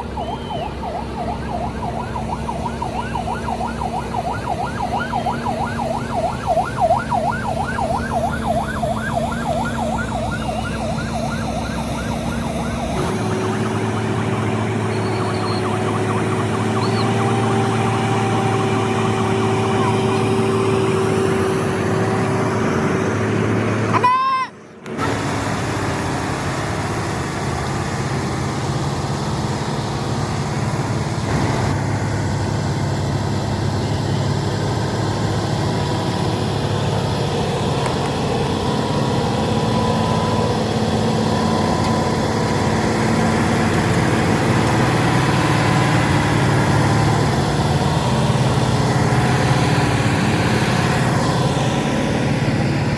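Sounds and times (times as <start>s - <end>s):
siren yelping warble: 0.0s - 21.5s
heavy vehicle engine drone: 0.0s - 52.9s
road noise: 0.0s - 52.9s.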